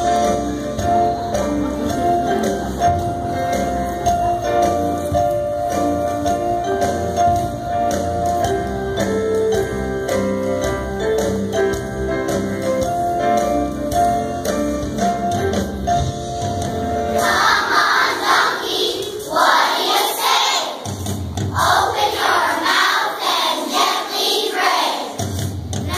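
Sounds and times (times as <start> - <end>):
instrumental melody: 0.0 - 17.6.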